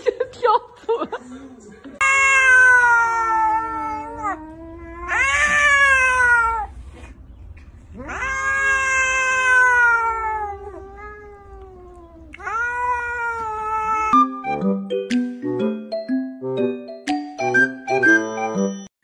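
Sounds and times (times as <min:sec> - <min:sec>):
cat meowing: 0:02.0 - 0:07.2, 0:07.9 - 0:14.2.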